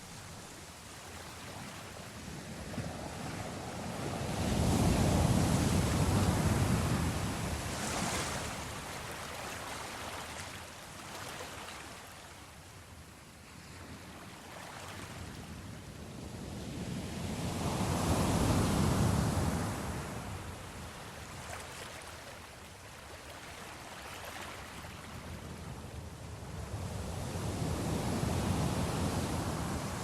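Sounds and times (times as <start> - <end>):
sea waves surging: 0.0 - 11.8.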